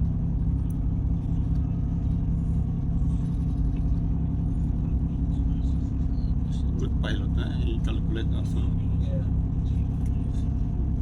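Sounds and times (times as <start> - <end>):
ship diesel machinery rumble: 0.0 - 11.0.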